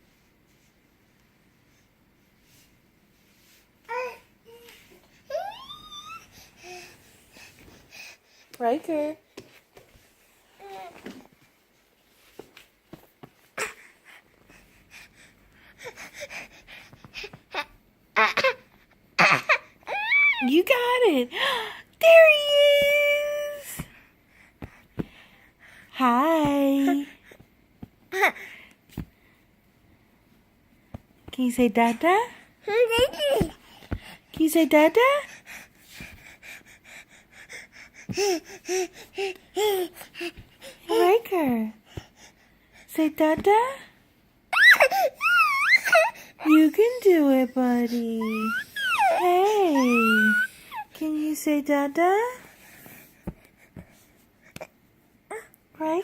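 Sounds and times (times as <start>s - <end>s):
baby squealing: 5.3s - 6.3s, 19.2s - 20.5s, 44.5s - 46.1s, 48.3s - 49.2s, 49.8s - 50.8s
baby babbling: 48.2s - 50.8s.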